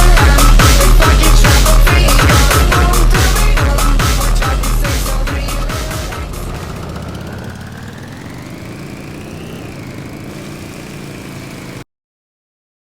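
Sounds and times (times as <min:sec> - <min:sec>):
mechanical drone with rising whine: 0:04.3 - 0:11.8.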